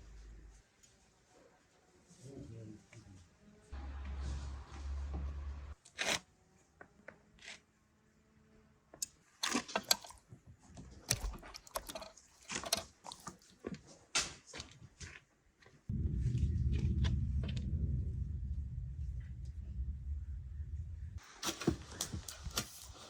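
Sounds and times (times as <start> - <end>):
crunching clicks and taps: 8.9 - 15.7.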